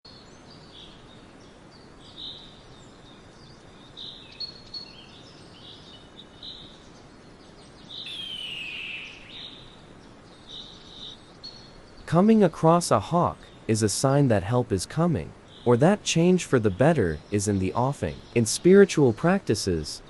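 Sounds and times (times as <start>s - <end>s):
outdoor background noise: 0.1s - 20.0s
high bird chirps: 7.8s - 9.8s
hawk's long falling call: 8.1s - 9.4s.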